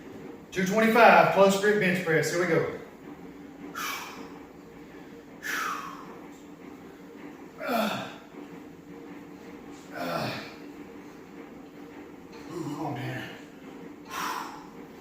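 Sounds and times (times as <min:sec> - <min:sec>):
man's forceful hissing breaths: 0:03.7 - 0:04.4, 0:05.4 - 0:06.3, 0:14.0 - 0:14.9.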